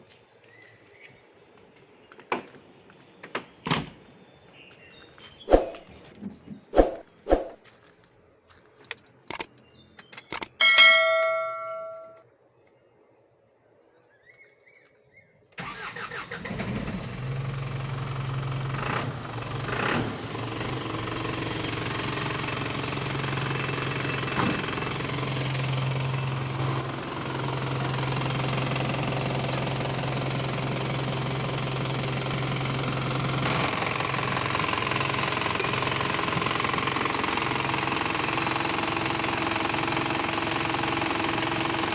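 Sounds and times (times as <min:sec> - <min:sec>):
clicks: 0:08.8 - 0:12.2
short tone: 0:10.6 - 0:12.2
diesel engine starting and idling: 0:15.6 - 0:41.9.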